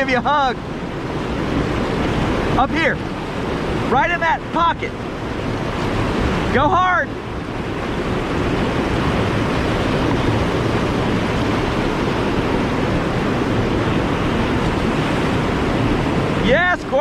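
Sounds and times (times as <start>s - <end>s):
whitewater roaring: 0.0s - 17.0s.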